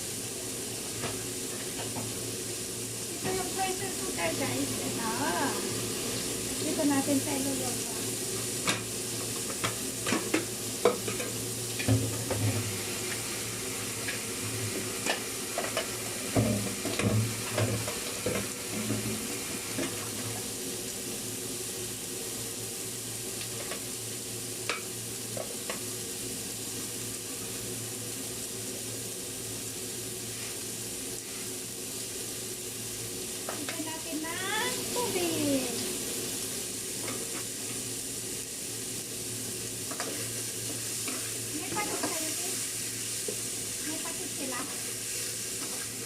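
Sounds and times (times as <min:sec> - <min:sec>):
chicken sizzling in oil: 0:00.0 - 0:46.0.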